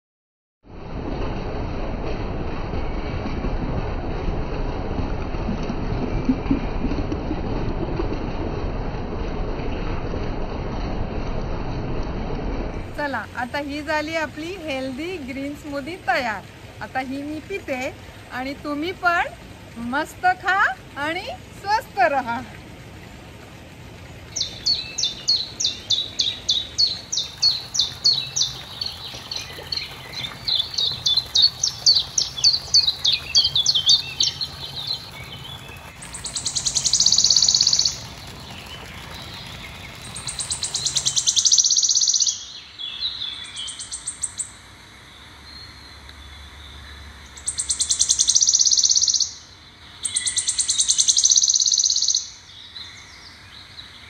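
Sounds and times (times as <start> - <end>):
birds chirping rapidly: 24.1 - 44.7, 45.3 - 54.0.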